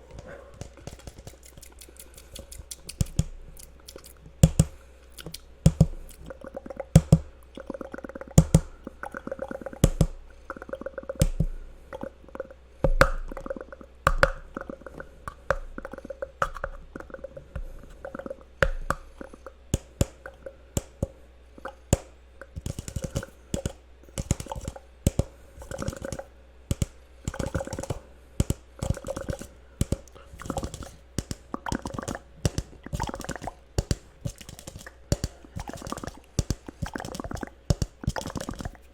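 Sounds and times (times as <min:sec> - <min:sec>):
cup tapping: 0:08.4 - 0:08.7.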